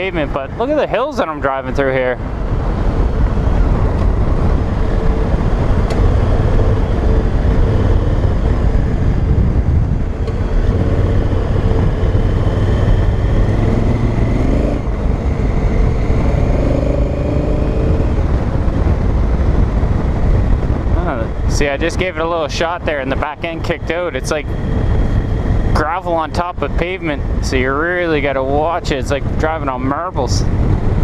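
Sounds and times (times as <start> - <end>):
motorcycle engine revving: 2.5 - 19.8.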